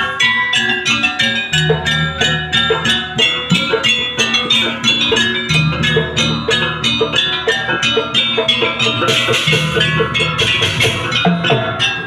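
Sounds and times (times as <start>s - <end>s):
drums: 0.0s - 12.0s
gamelan metallophones struck: 0.0s - 12.0s.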